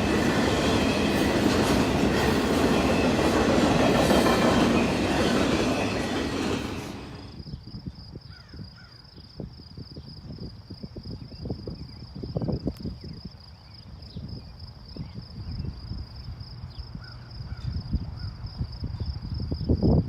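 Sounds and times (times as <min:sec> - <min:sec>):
train wheels clattering on rails: 0:00.0 - 0:07.4
insects chirring: 0:00.0 - 0:20.0.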